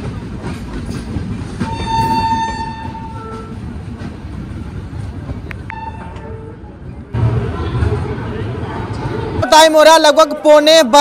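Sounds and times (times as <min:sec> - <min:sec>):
passing train on next track: 0:00.0 - 0:11.0
train rumbling at speed: 0:00.0 - 0:11.0
train horn: 0:01.6 - 0:03.6, 0:05.7 - 0:06.6.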